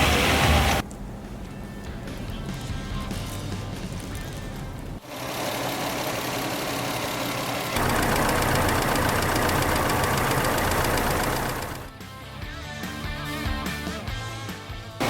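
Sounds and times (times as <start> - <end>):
car engine knocking: 4.5 - 11.9.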